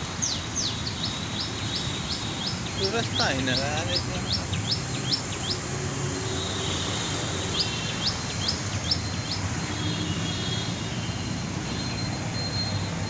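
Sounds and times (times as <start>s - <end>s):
small bird chirping: 0.0s - 5.7s, 7.4s - 9.7s.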